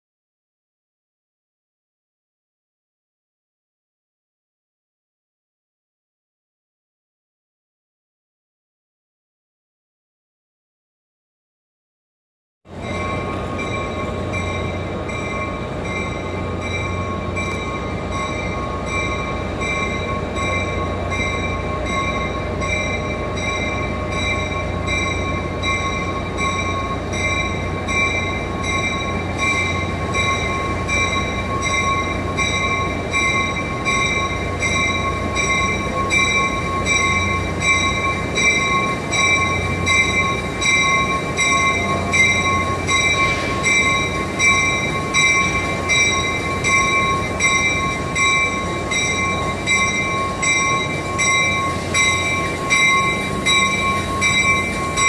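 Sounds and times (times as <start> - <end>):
train high whine: 12.7 - 55.0.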